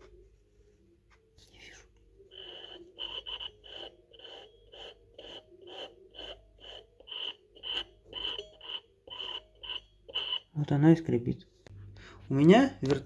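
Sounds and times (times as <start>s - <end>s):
turntable wire squeaking: 2.3s - 10.6s.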